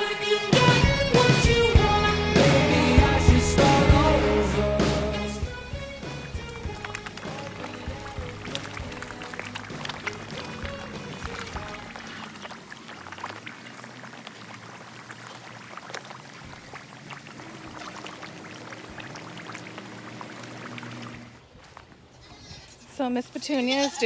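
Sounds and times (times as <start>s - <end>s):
faint music: 0.0s - 12.5s
water pouring: 5.4s - 22.3s.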